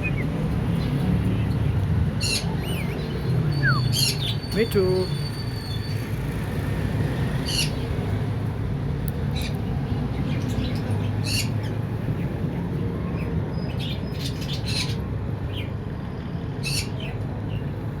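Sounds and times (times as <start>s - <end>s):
lovebird squawking and chirping: 2.2s - 5.9s.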